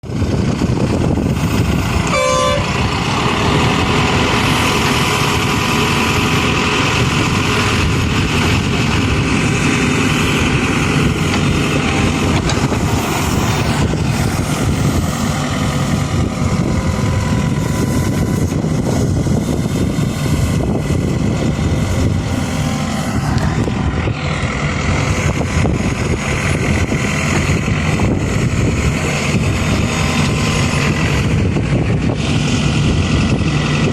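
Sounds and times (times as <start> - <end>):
diesel engine running: 0.0 - 33.9
short horn toot: 2.0 - 2.8.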